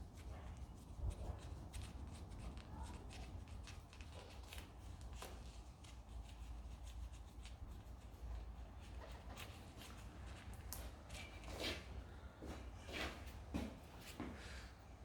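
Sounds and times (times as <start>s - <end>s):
light clicks of hand work: 9.1s - 11.8s.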